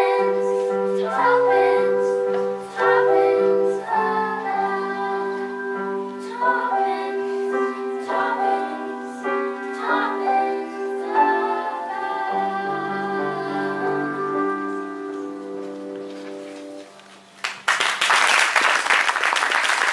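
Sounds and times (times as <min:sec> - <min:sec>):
women singing: 0:00.0 - 0:15.0
sustained accompaniment: 0:00.0 - 0:17.0.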